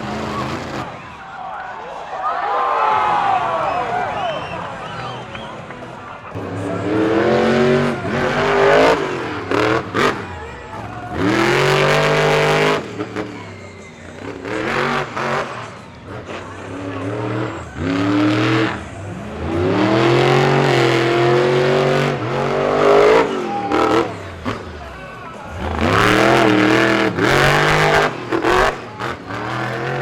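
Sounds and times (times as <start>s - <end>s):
monster truck engine revving: 0.0s - 1.5s, 2.8s - 30.0s.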